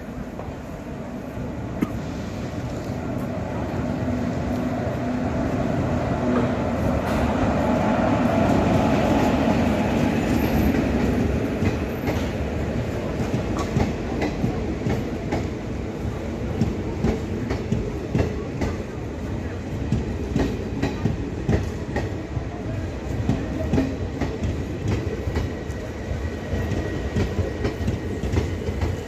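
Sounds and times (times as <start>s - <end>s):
train wheels clacking over rail joints: 10.0s - 15.6s.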